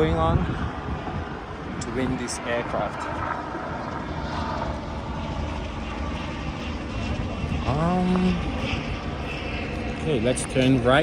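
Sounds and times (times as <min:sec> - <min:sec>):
outdoor background noise: 0:00.0 - 0:11.0
propeller airplane engine drone: 0:00.0 - 0:11.0.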